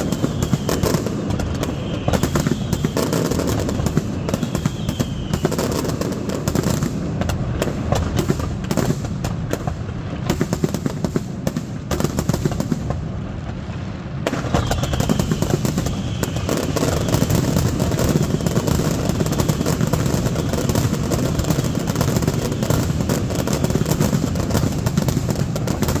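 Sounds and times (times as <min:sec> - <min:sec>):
faint falling whistles: 0:00.0 - 0:06.0, 0:14.3 - 0:23.6
fireworks bangs and crackles: 0:00.0 - 0:26.0.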